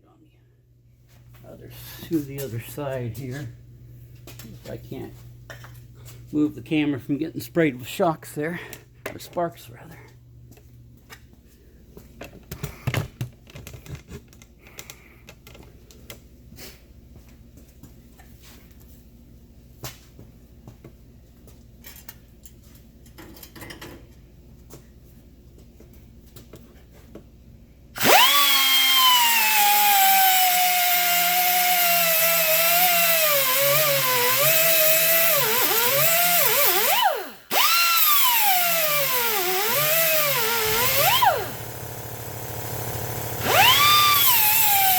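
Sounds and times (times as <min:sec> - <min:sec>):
grinder cutting metal: 0:28.0 - 0:44.9.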